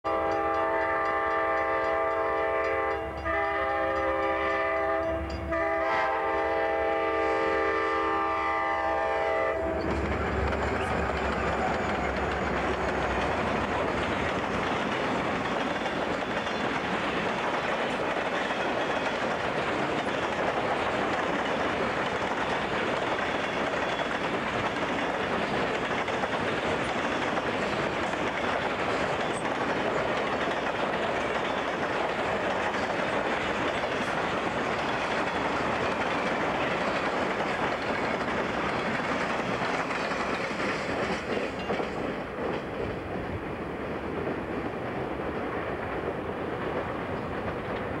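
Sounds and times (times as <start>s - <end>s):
freight train rolling past: 0.0s - 48.0s.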